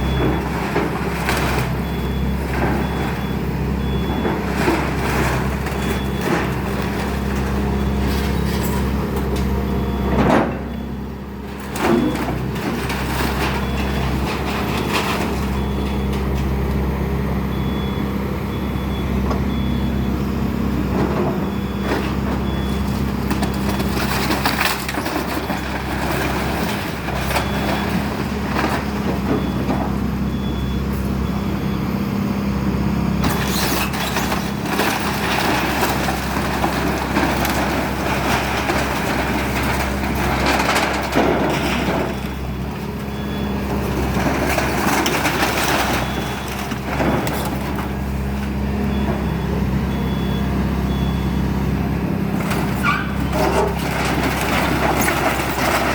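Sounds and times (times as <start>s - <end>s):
excavator engine running: 0.0s - 55.9s
faint backup alarm beeping: 13.0s - 51.8s.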